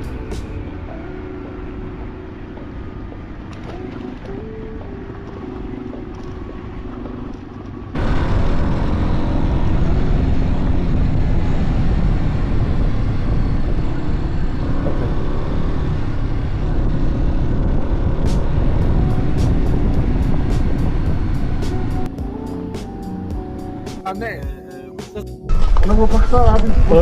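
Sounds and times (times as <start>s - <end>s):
motorcycle engine running: 0.0s - 24.1s
wind noise on microphone: 8.8s - 22.1s.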